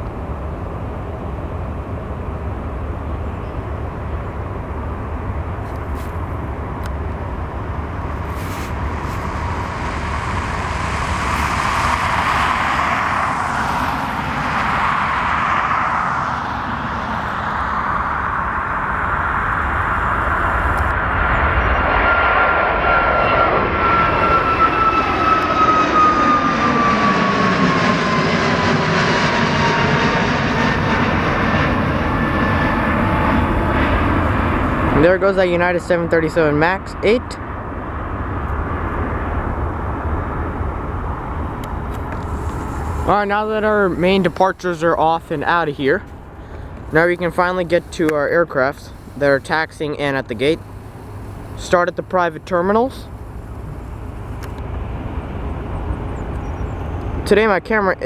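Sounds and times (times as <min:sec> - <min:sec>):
high engine whine: 0:00.0 - 0:58.0
jet engine noise: 0:00.0 - 0:58.0.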